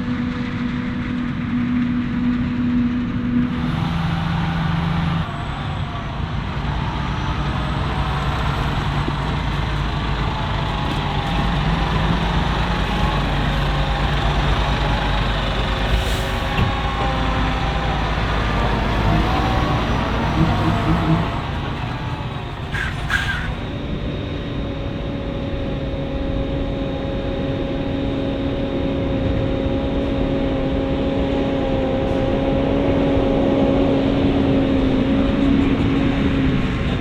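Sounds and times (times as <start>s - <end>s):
diesel farm machinery running: 0.0s - 25.2s.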